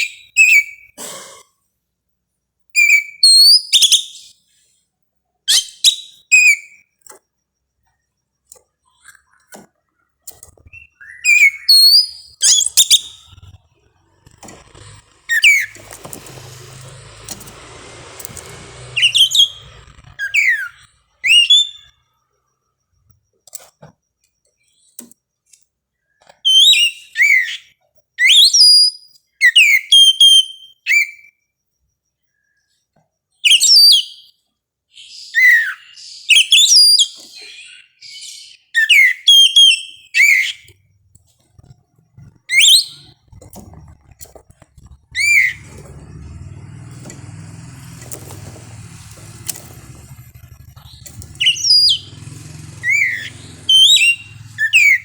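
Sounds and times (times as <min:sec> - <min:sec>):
bird singing whistled phrases: 0:02.8 - 0:04.4, 0:10.7 - 0:13.5, 0:15.3 - 0:16.2, 0:18.4 - 0:22.0, 0:26.5 - 0:27.6, 0:28.2 - 0:31.3, 0:33.5 - 0:34.3, 0:35.0 - 0:40.8, 0:42.5 - 0:43.2, 0:45.1 - 0:45.7, 0:50.7 - 0:55.0.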